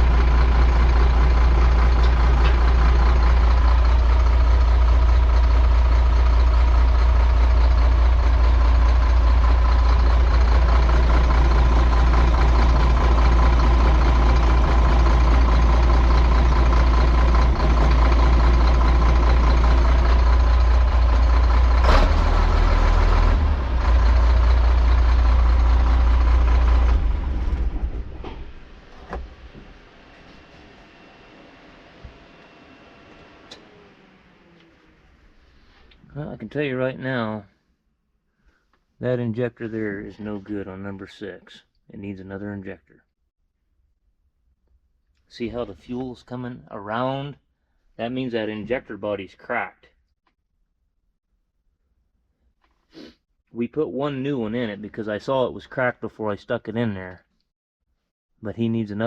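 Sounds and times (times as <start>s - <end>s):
diesel engine running: 0.0s - 36.0s
engine running down to stop: 0.0s - 36.0s.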